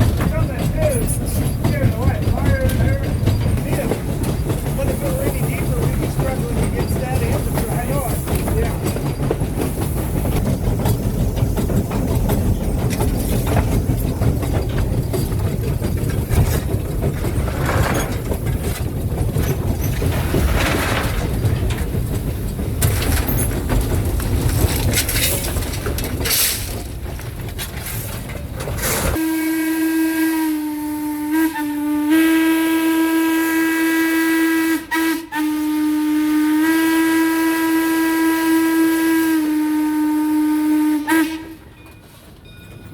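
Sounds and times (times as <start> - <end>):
steam locomotive rumble and rattle: 0.0 - 42.9
steam whistle low hoot: 29.2 - 41.7.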